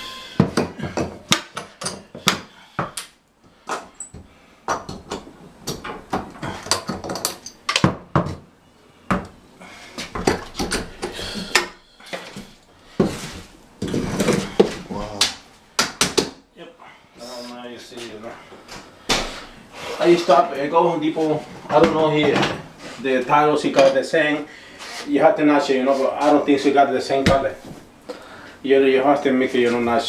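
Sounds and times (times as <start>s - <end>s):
sharp knocks and clacks: 10.0s - 11.8s.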